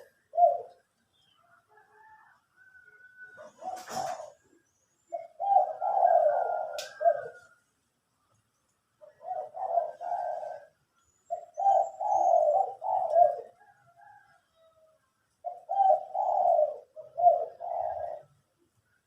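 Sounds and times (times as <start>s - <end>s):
dove cooing: 0.0s - 1.0s, 3.1s - 7.6s, 9.0s - 18.6s.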